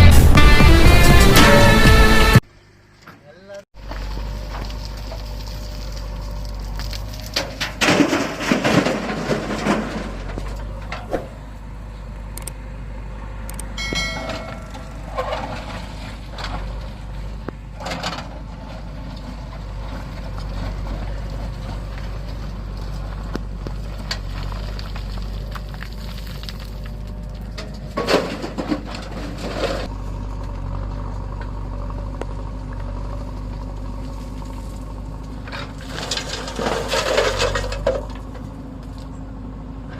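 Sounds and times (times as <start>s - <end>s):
heavy diesel engine running: 0.0s - 2.4s, 3.8s - 39.9s
short pitched sound: 0.0s - 2.4s.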